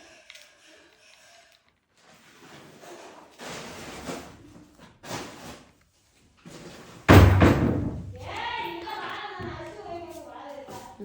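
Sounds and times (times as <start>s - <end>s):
objects rustling and shuffling: 2.0s - 11.0s.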